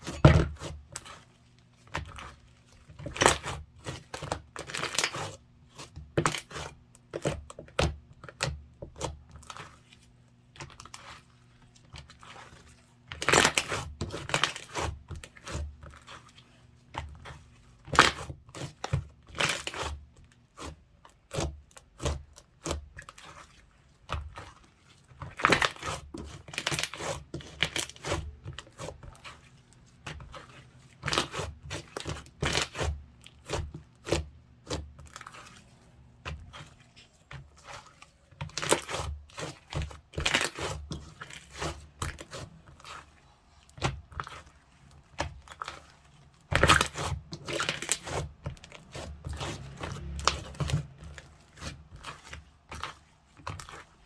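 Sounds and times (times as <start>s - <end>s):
slime squished by hand: 25.2s - 54.0s.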